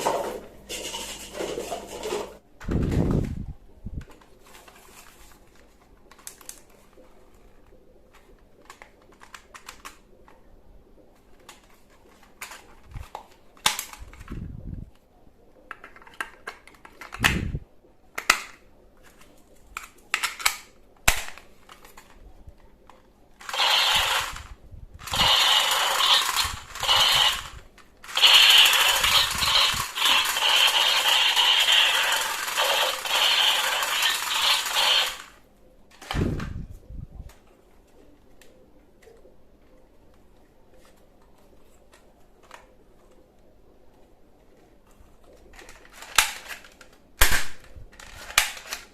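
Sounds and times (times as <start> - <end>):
toy gun clicks and snaps: 13.6 - 14.4, 18.2 - 18.6, 19.8 - 22.1, 23.4 - 35.3, 45.6 - 48.9
toy gun rattling bursts: 23.4 - 35.4, 45.6 - 48.9.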